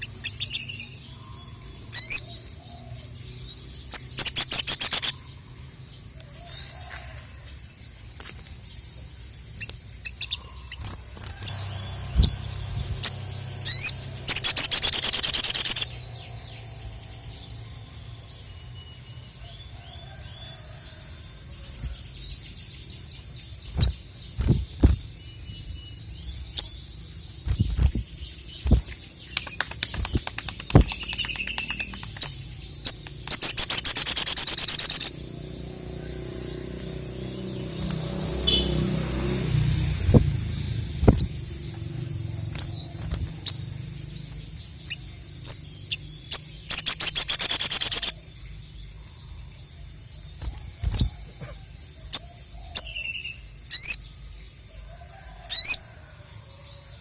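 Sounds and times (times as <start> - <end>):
bird sharp high chirps: 0.0 - 2.8, 3.6 - 5.4, 8.2 - 19.3, 21.6 - 39.0, 40.0 - 49.4, 50.0 - 54.3
bird rapid high trills: 4.0 - 5.3, 9.6 - 16.0, 33.3 - 35.2, 46.7 - 48.2.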